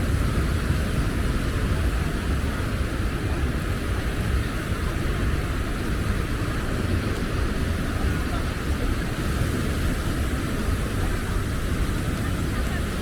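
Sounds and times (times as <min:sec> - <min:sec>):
beach ambience rush: 0:00.0 - 0:13.0
wind rumbling on microphone: 0:00.0 - 0:13.0.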